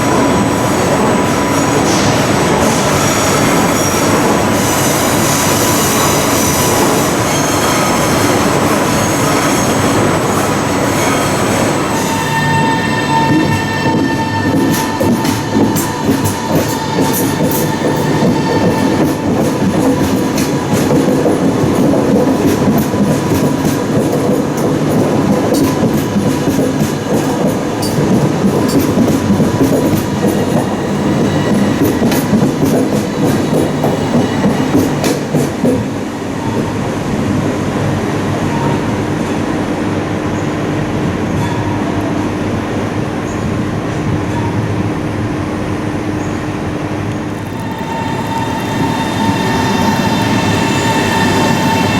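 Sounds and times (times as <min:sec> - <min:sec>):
train running with steady hum: 0:00.0 - 0:51.9
train wheels clicking over rail joints: 0:13.1 - 0:36.1.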